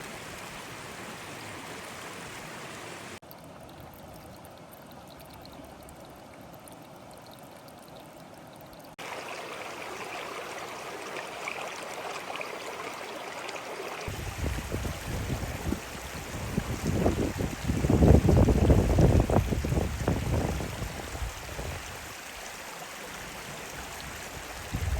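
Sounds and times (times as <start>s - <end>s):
river water rushing: 0.0s - 3.2s.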